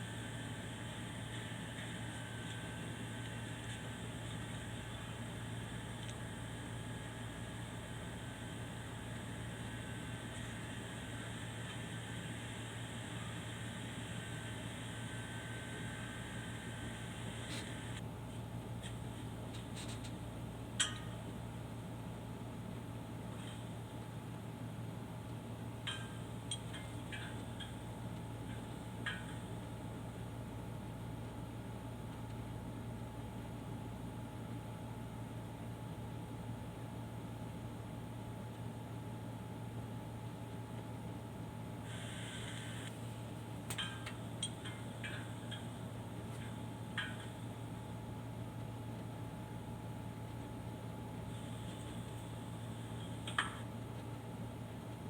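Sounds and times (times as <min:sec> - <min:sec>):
low hum and hiss: 0:00.0 - 0:55.0
faint clicks and taps: 0:53.0 - 0:54.2.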